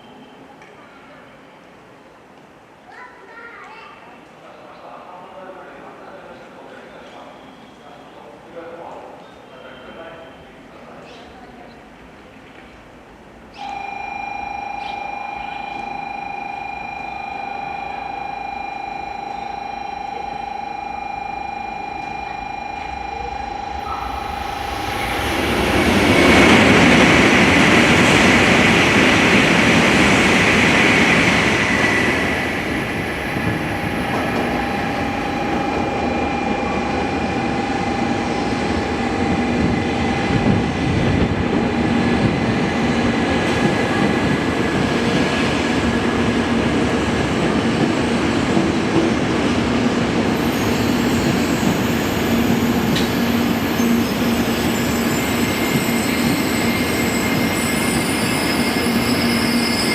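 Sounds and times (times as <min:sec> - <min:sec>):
train rolling noise: 0:08.3 - 0:59.9
train rushing noise: 0:15.2 - 0:59.9
thin whines: 0:18.6 - 0:28.6.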